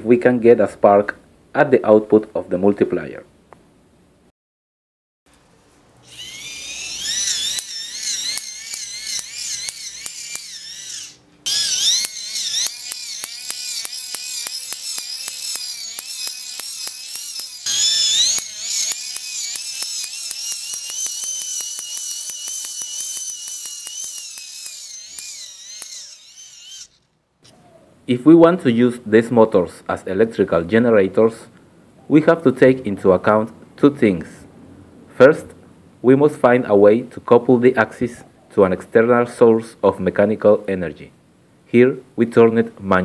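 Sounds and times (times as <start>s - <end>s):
hand-cranked motor whining: 6.0s - 27.1s.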